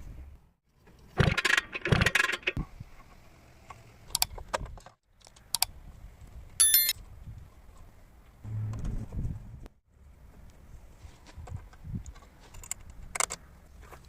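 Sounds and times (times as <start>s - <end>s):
ringing metallic clink: 6.6s - 7.0s.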